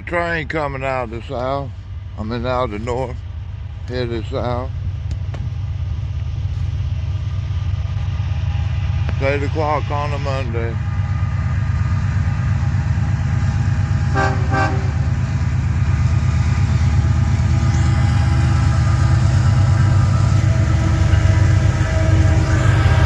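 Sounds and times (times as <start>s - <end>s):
diesel locomotive engine rumble: 0.0s - 23.0s
locomotive horn toots: 14.1s - 15.2s, 18.5s - 23.0s.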